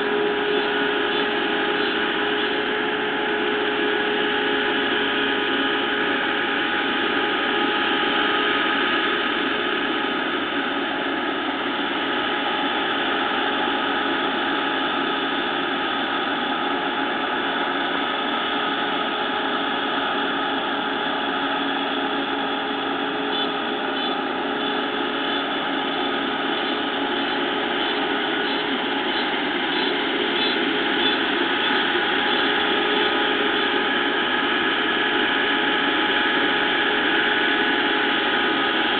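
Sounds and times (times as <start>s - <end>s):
combine harvester droning: 0.0s - 38.9s
steady machine whine: 0.0s - 38.9s.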